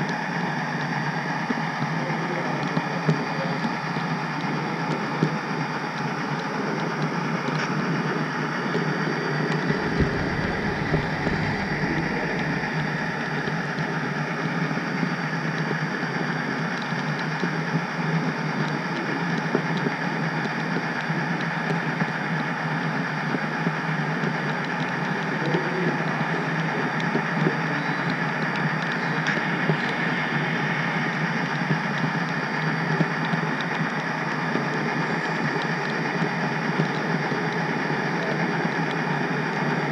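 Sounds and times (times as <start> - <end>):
model train rumbling on track: 0.0 - 39.9.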